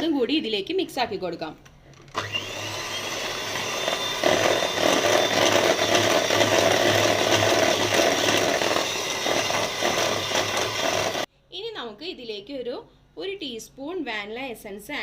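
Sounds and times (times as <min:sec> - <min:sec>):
electric hand mixer running: 0:02.1 - 0:11.3.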